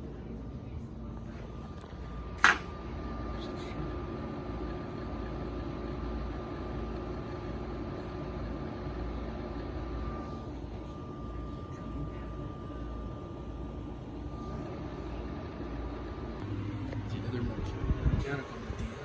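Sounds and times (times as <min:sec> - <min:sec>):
air conditioner humming: 0:00.0 - 0:19.0
sharp click: 0:02.4 - 0:02.7.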